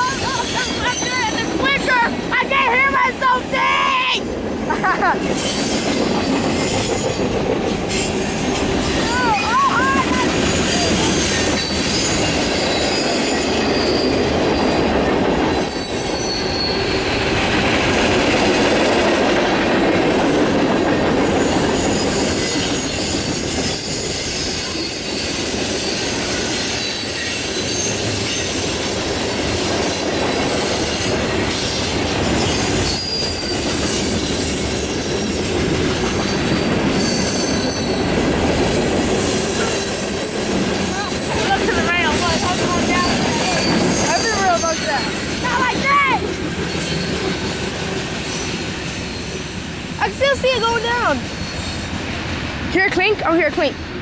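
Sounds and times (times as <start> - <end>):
steel wheels rumbling on rail: 0.0 - 54.0
faint wheel squeal: 15.7 - 17.0.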